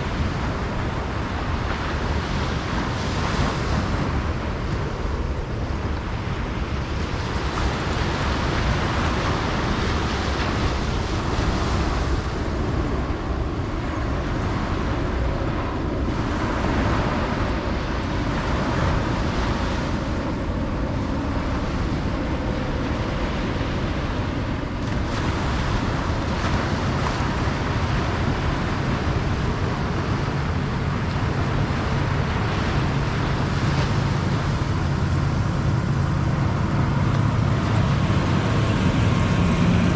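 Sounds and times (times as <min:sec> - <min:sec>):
ocean waves breaking on beach: 0:00.0 - 0:39.9
wind on microphone: 0:00.0 - 0:39.9
low steady hum: 0:20.2 - 0:39.9.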